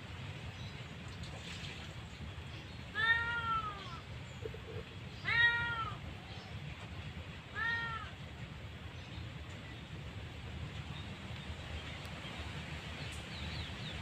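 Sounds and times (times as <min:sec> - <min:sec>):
cat meowing: 0:02.9 - 0:04.0, 0:05.2 - 0:06.0, 0:07.5 - 0:08.2.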